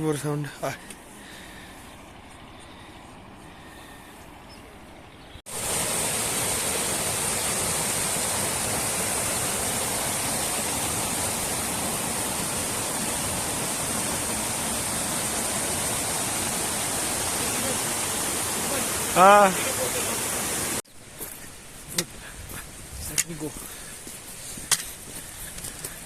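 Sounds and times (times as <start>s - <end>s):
river rushing: 5.5s - 20.8s.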